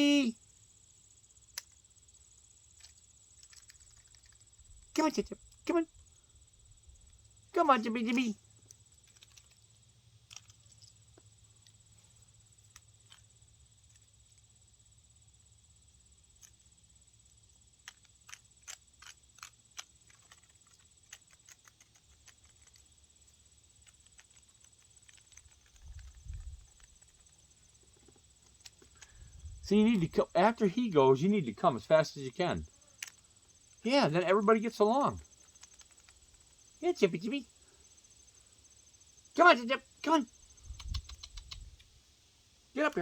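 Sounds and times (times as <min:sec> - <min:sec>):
faint clicks and ticks: 0:02.7 - 0:05.8, 0:08.0 - 0:14.5, 0:17.8 - 0:30.2, 0:32.8 - 0:37.4, 0:40.1 - 0:42.0.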